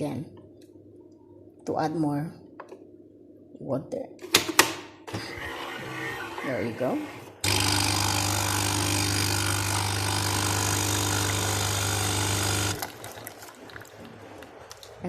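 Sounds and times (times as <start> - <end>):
coffee machine pump buzzing: 5.2 - 13.2.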